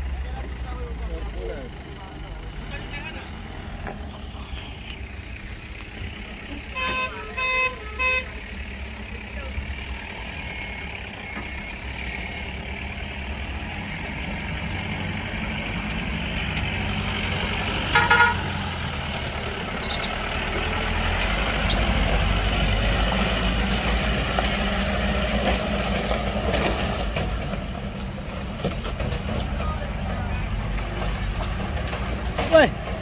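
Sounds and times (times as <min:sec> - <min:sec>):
heavy vehicle engine running: 0:00.0 - 0:33.0
vehicle horn toot: 0:06.6 - 0:08.5, 0:17.9 - 0:18.7.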